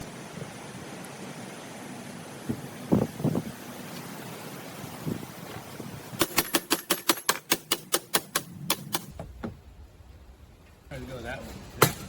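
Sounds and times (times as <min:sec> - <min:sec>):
sharp mechanical clicks: 0:06.2 - 0:09.1.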